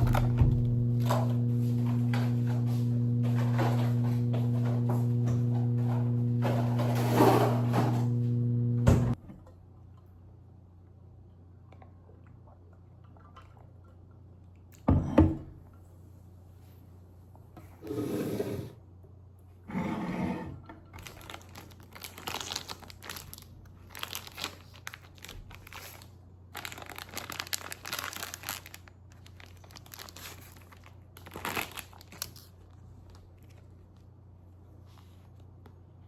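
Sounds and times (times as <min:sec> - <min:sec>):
crinkling and rustling: 0:00.0 - 0:08.3, 0:20.9 - 0:35.9.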